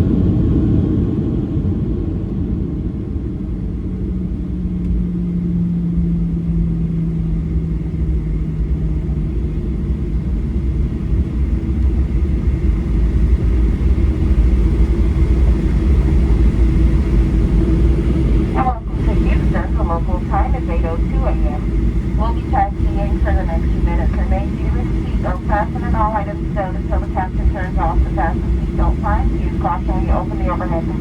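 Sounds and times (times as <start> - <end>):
rumble of wheels and jet engines: 0.0 - 31.0
higher hum: 17.3 - 31.0.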